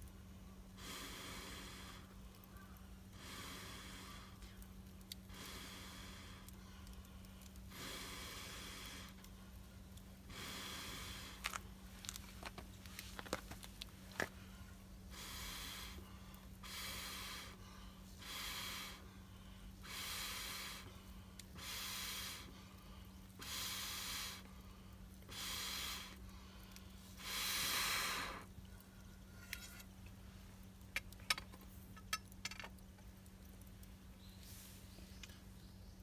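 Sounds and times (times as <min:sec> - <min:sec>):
breathy puffs of blown air: 0:00.7 - 0:02.3, 0:03.1 - 0:09.6, 0:10.2 - 0:11.4, 0:14.4 - 0:28.6.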